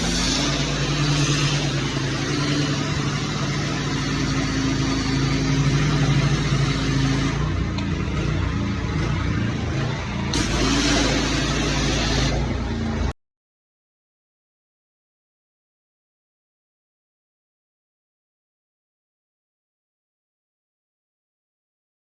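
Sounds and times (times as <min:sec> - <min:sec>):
engine running: 0:00.0 - 0:13.2.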